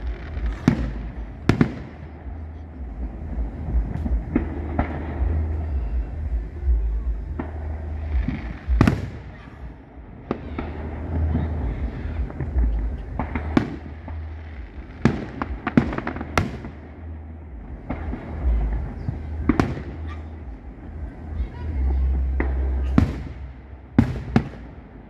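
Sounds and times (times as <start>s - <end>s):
fireworks bursting with echoes: 0.0s - 25.0s.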